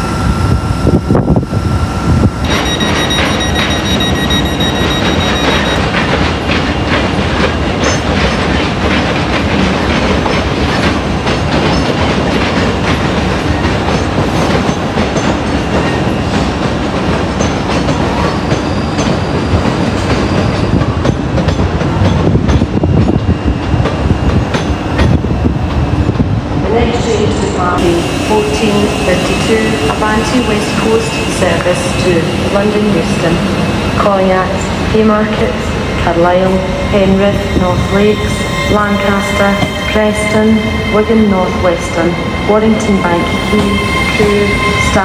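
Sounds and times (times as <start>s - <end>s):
train rumble: 0.0s - 45.0s
train wheels clicking over rail joints: 2.5s - 26.3s.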